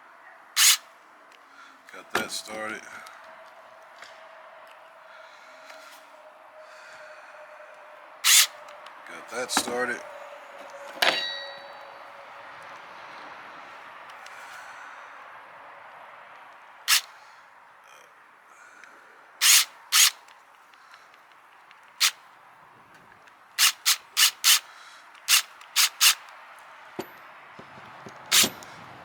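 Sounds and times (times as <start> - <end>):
sharp rasping strokes: 0.6 - 0.8, 8.2 - 8.6, 16.9 - 17.1, 19.4 - 20.2, 23.6 - 26.3.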